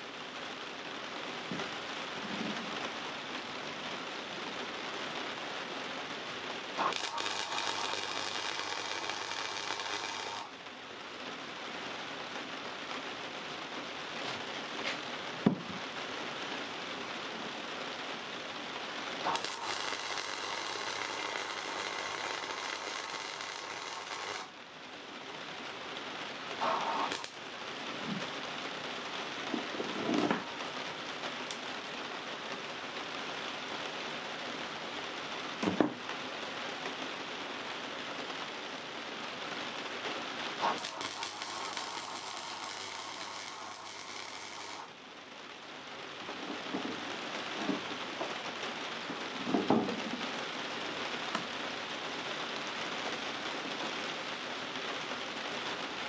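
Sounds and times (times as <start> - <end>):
steady background hiss: 0.0 - 56.0
arc welding crackling hiss: 4.1 - 15.2, 15.8 - 33.6, 39.5 - 45.2.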